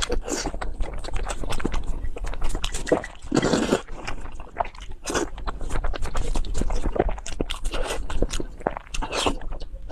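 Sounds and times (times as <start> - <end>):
food being chewed and crunched: 0.0 - 9.9.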